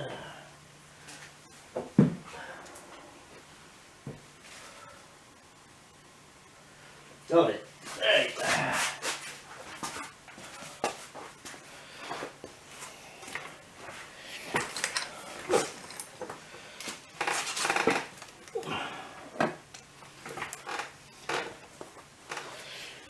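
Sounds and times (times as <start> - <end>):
metallic clinks of tools: 19.7 - 20.7.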